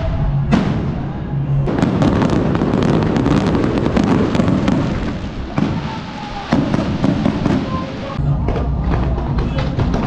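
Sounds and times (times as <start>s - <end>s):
fireworks bursting: 0.4s - 8.2s
fireworks crackling: 1.7s - 8.2s.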